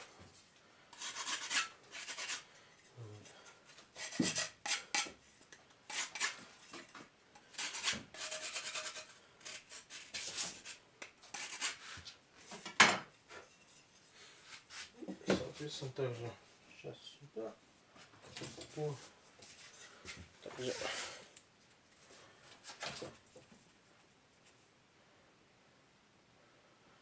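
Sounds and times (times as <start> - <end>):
hand scraping on brick: 1.0 - 2.4.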